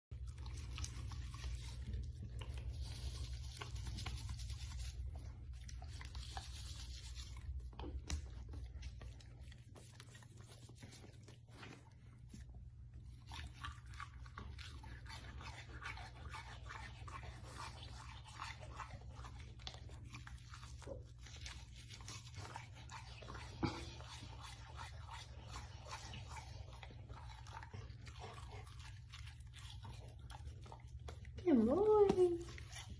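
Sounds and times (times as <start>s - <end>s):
brush scraping through dog fur: 5.8s - 7.6s.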